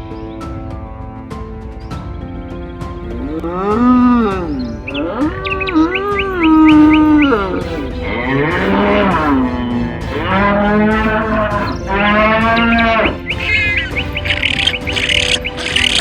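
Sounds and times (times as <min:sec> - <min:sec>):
cattle mooing: 0:06.8 - 0:16.0.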